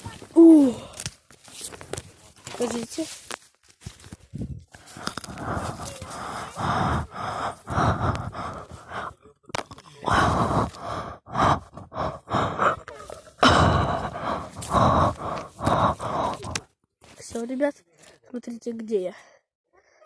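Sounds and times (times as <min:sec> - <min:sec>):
child gasping for breath: 0:00.4 - 0:01.0, 0:04.8 - 0:09.2, 0:10.1 - 0:16.6.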